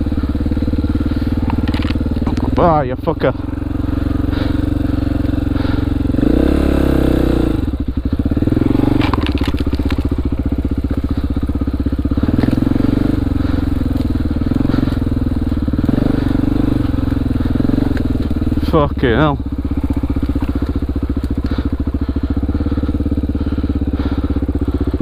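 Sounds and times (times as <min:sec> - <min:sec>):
motorcycle engine chugging: 0:00.0 - 0:25.0.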